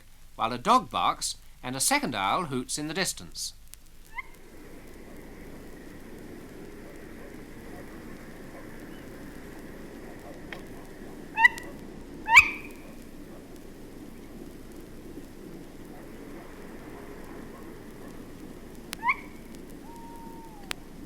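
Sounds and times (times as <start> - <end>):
town traffic rumble: 3.5 - 21.0
distant owl hooting: 4.0 - 21.0
owl calling: 4.0 - 21.0
dog barking: 6.8 - 9.2, 9.8 - 13.6, 15.9 - 20.7.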